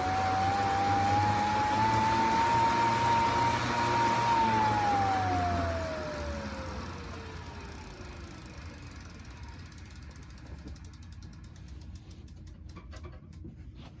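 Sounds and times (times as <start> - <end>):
freehub ratchet clicking: 4.3 - 13.4.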